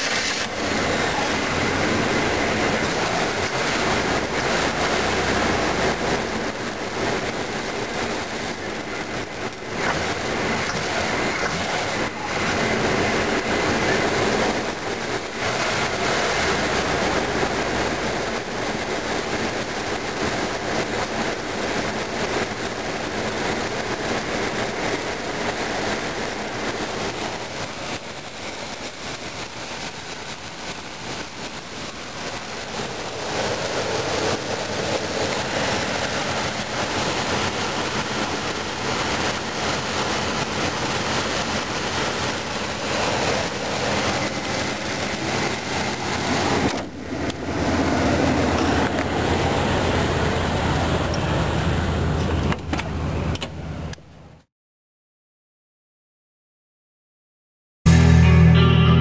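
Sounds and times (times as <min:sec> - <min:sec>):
engine running with mechanical clatter: 0:00.0 - 0:54.1.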